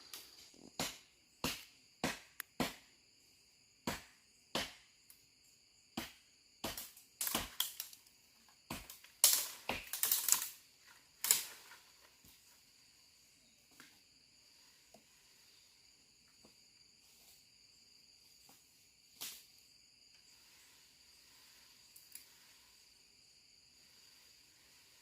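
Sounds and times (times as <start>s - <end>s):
crickets chirping: 0.0s - 25.0s
sharp knocks of hand tool: 0.8s - 2.8s, 3.8s - 4.8s.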